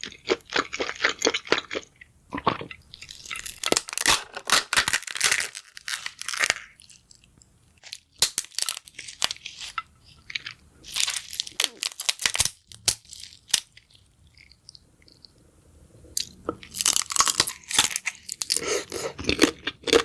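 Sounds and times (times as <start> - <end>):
crunchy chewing: 5.2 - 15.4, 16.1 - 20.0.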